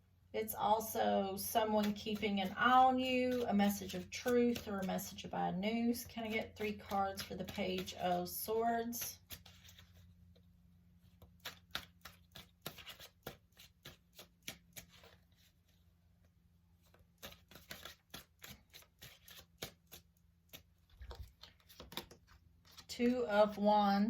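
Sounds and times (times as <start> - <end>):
cards being shuffled: 1.4 - 5.3, 5.9 - 10.4, 11.1 - 15.8, 16.8 - 23.0.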